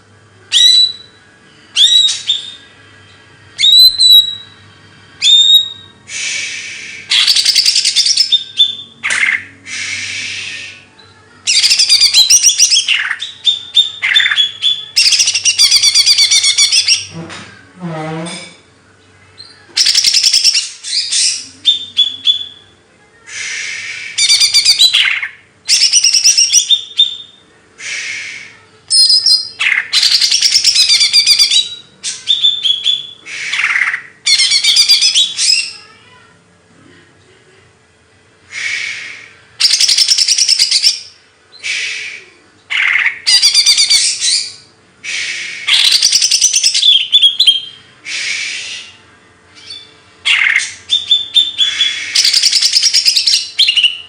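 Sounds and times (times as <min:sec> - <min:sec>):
faint hum: 0:00.0 - 0:54.0
songbird singing trills: 0:00.5 - 0:04.6, 0:05.2 - 0:17.1, 0:23.3 - 0:35.7, 0:42.7 - 0:44.7, 0:49.5 - 0:54.0.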